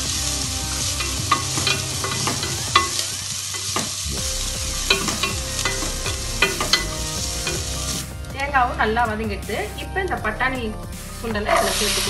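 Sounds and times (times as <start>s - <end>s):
food sizzling in hot oil: 0.0s - 8.4s, 11.5s - 12.0s
spatula knocking against pan: 1.0s - 3.0s.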